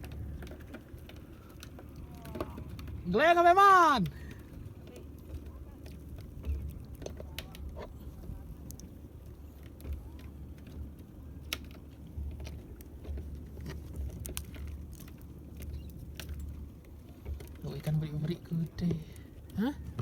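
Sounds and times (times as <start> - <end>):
low steady rumble: 0.0 - 20.0
light clicks and taps: 4.0 - 20.0.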